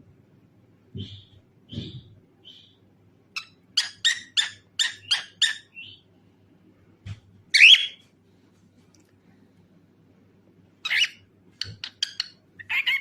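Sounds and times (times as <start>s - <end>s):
cockatiel chirping: 3.4s - 6.0s, 7.6s - 8.0s, 10.8s - 13.0s.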